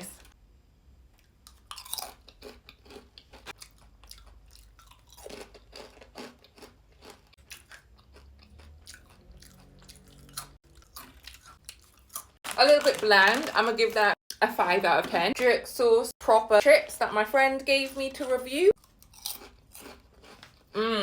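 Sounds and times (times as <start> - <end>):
crunching and chewing: 1.2 - 13.6, 18.8 - 20.8.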